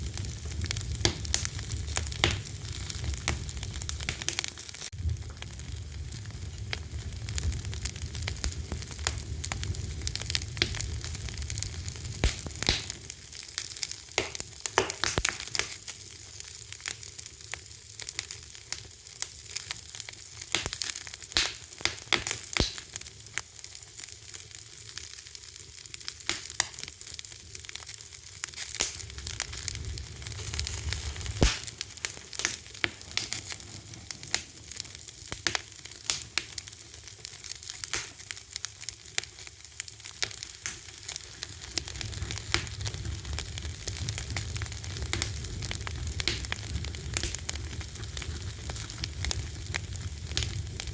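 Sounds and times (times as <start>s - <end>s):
fire hissing: 0.0s - 17.3s, 27.2s - 50.9s
low rumble of flames: 0.0s - 50.9s
wood popping and snapping: 12.2s - 13.0s, 14.2s - 15.8s, 30.8s - 33.6s.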